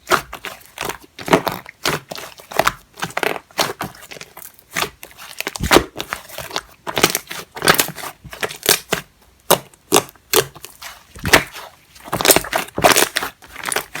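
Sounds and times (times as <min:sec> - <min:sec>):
slime squishing by hand: 0:00.0 - 0:14.0.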